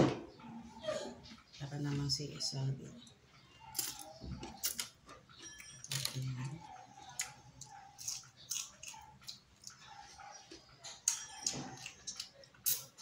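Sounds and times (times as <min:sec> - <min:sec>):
person chewing: 0:03.1 - 0:13.0.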